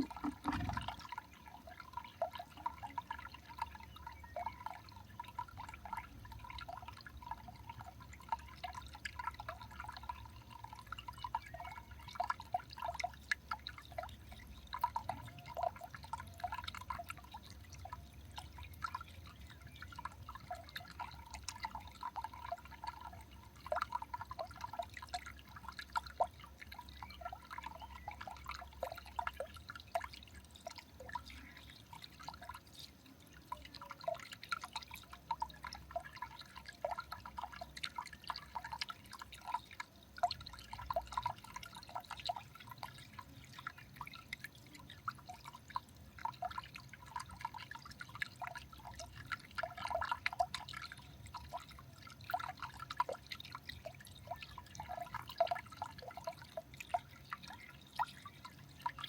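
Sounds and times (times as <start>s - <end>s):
faint low hum: 0.0s - 59.0s
water dripping: 0.0s - 59.0s.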